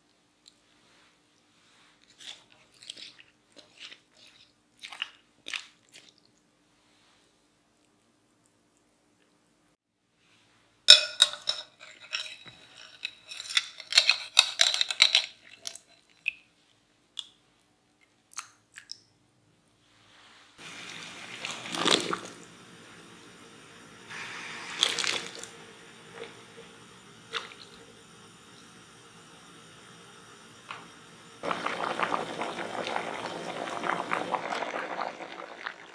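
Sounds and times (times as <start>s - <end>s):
watery hiss: 20.6s - 35.9s.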